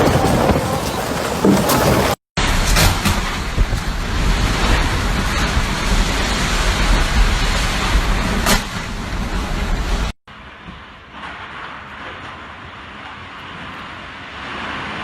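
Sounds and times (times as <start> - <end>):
wind buffeting microphone: 0.0 - 11.6.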